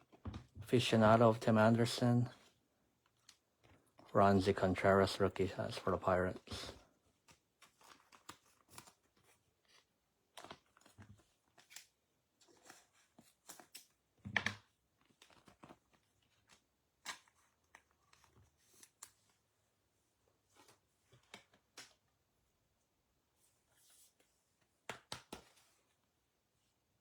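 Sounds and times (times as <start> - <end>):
cards rustling and clicking: 6.1 - 19.4, 24.1 - 25.9.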